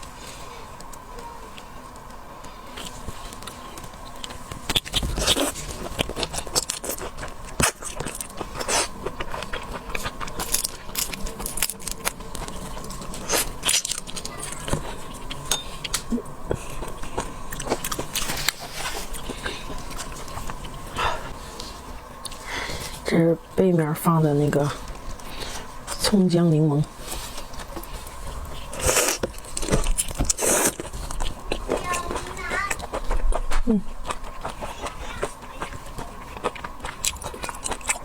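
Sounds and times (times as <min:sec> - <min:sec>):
wet chewing: 0:00.8 - 0:23.2, 0:23.8 - 0:38.0
shrimp shells crackling: 0:04.8 - 0:16.1.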